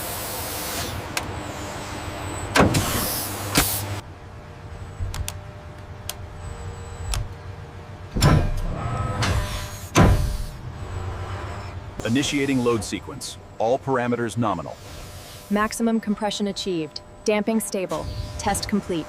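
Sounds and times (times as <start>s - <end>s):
machinery hum with motor whir: 0.0s - 19.0s
mechanical clanks and clicks: 8.1s - 10.2s.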